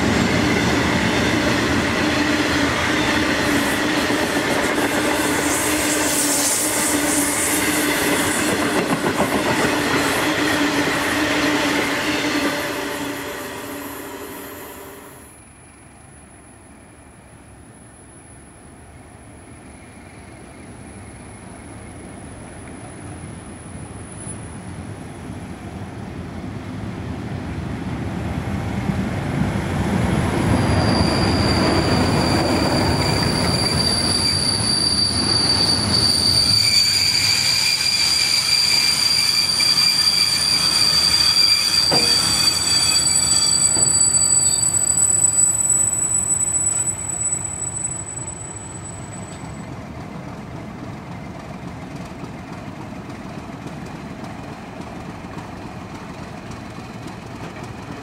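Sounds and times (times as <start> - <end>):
low train running noise: 0.0 - 58.0
train rumbling past: 0.0 - 58.0
high-pitched wheel squeal: 30.3 - 49.6.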